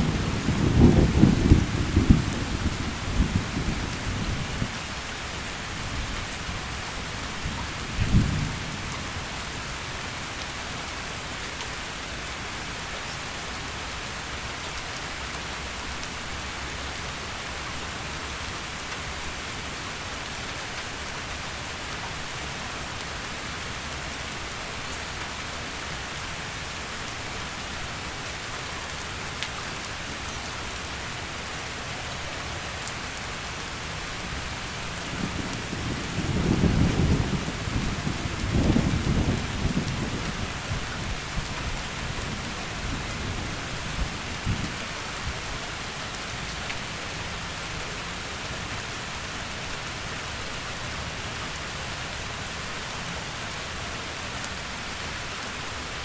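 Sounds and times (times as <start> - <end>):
low thunder rumble: 0.0 - 4.8, 7.5 - 8.8, 35.1 - 41.5
heavy rain falling: 0.0 - 56.0.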